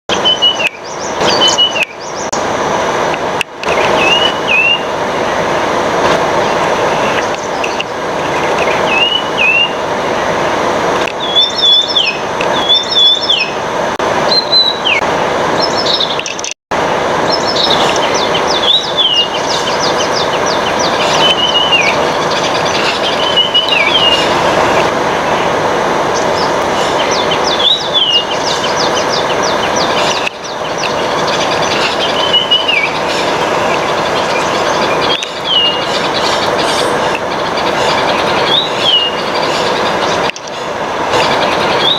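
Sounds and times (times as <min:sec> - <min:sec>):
bird whistled call: 0:00.1 - 0:02.2, 0:04.0 - 0:04.9, 0:08.9 - 0:09.8, 0:11.2 - 0:13.6, 0:14.3 - 0:15.0, 0:17.3 - 0:24.3, 0:26.8 - 0:36.9, 0:38.4 - 0:39.7, 0:41.2 - 0:41.9
steady rushing noise: 0:00.1 - 0:41.9.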